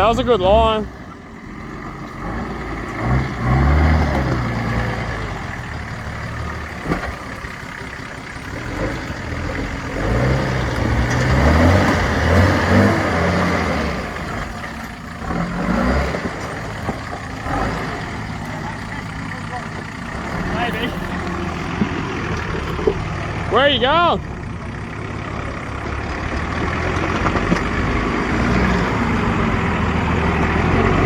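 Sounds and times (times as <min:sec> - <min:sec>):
engine revving in surges: 0:00.0 - 0:31.0.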